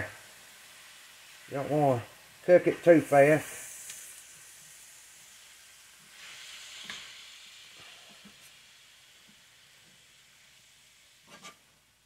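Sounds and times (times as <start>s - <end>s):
meat sizzling in a skillet: 0.0s - 12.0s
spatula tapping and scraping: 11.3s - 11.6s.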